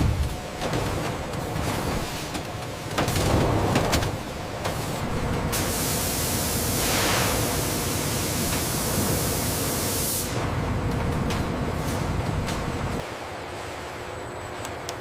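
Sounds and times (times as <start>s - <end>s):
loud steady hiss: 5.6s - 10.4s.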